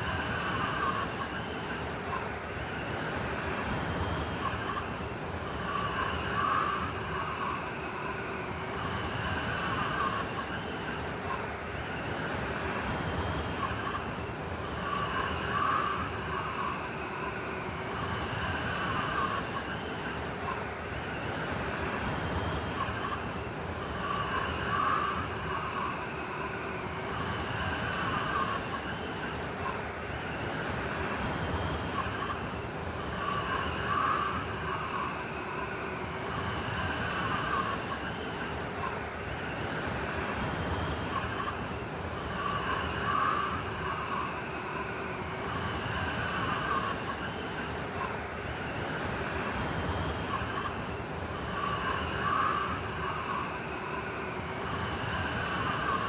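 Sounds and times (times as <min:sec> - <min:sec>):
blizzard wind howling: 0:00.0 - 0:56.0
high whistling wind tones: 0:00.0 - 0:56.0.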